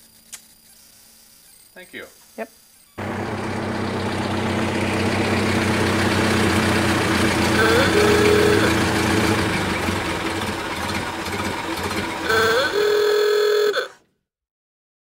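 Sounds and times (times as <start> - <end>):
car engine idling: 3.0 - 13.9.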